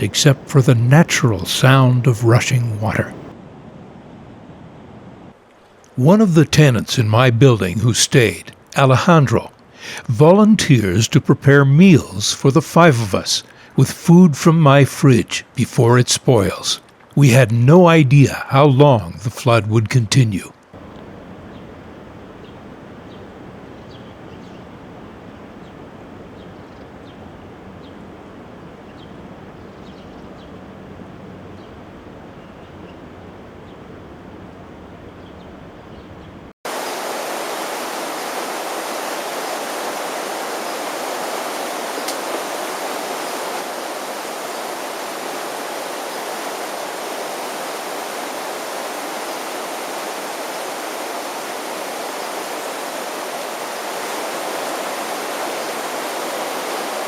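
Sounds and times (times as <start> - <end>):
rushing floodwater: 0.0 - 3.4, 5.3 - 23.7, 36.7 - 57.0.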